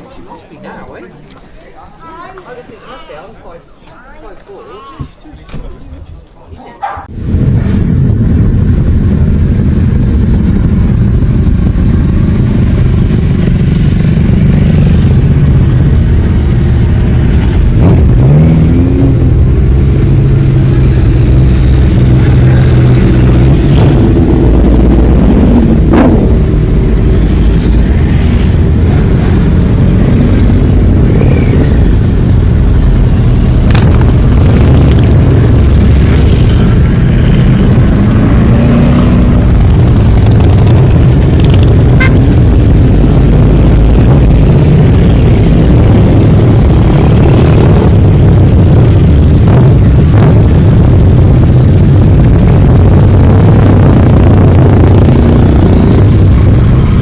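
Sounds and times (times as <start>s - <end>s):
motorcycle engine revving: 7.0s - 57.0s
sharp cracks: 33.6s - 36.9s.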